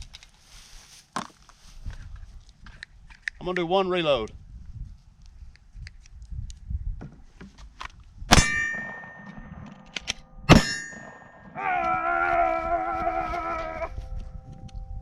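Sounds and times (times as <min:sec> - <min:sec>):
pistol shots: 0:08.3 - 0:09.6, 0:10.5 - 0:11.4
metallic ringing clang: 0:08.3 - 0:11.6.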